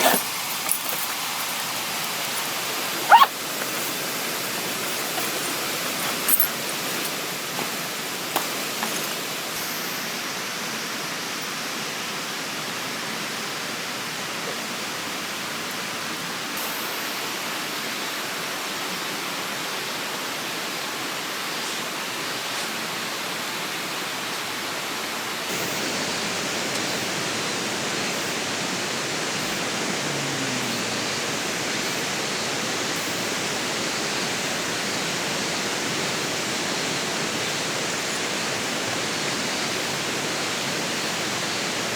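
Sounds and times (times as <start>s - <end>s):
river rushing: 0.0s - 9.5s, 25.5s - 41.9s.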